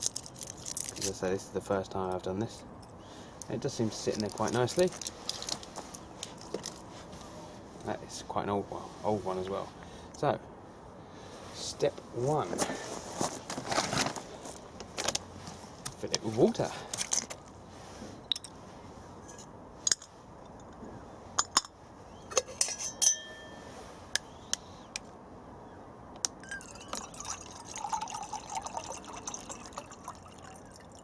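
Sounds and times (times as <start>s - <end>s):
metallic clinks and knocks: 21.4s - 23.6s
water pouring into coffee maker: 26.7s - 31.0s.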